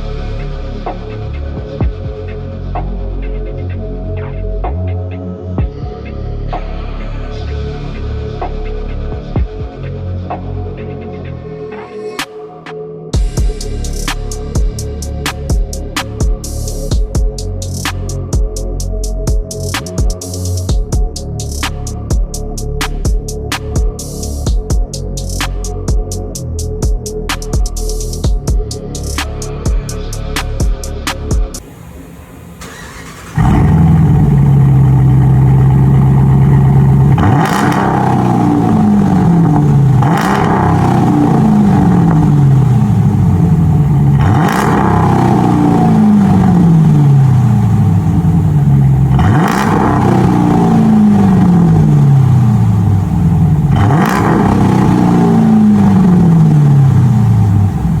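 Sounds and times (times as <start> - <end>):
car engine revving: 30.3 - 58.0.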